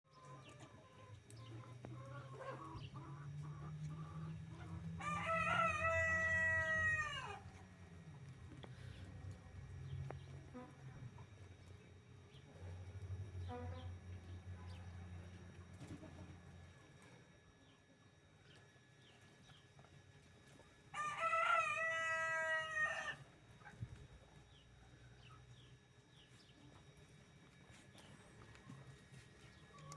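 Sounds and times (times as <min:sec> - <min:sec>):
hens clucking softly: 0:00.1 - 0:07.6
rooster crowing: 0:04.6 - 0:07.5, 0:20.9 - 0:23.3.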